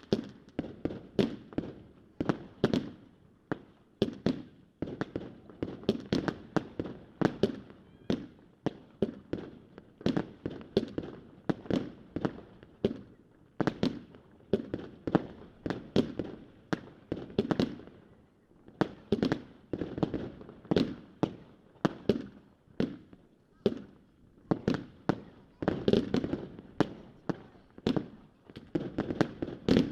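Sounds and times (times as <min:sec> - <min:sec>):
fireworks bangs echoing: 0:18.8 - 0:29.9.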